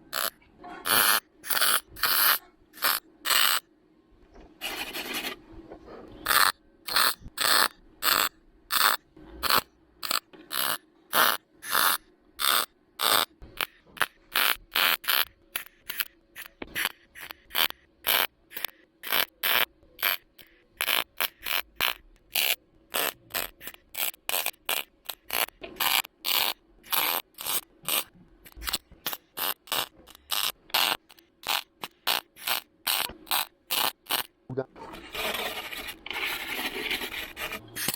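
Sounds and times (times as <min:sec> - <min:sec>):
welding arc crackling: 0:06.3 - 0:34.3.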